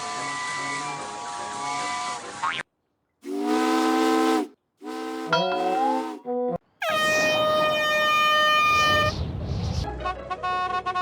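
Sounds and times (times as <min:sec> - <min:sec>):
vehicle horn blasts: 0:03.3 - 0:09.1
high-pitched whistle: 0:05.3 - 0:09.1.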